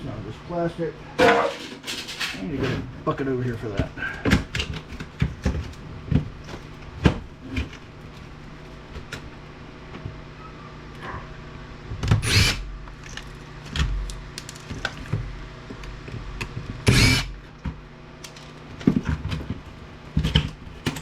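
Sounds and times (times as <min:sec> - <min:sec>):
power drill whirring: 0:12.2 - 0:12.7, 0:16.9 - 0:17.4.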